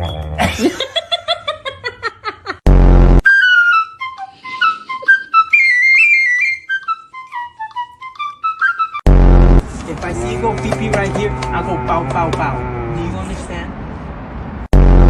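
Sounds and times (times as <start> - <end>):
whistled tune: 3.2 - 9.0.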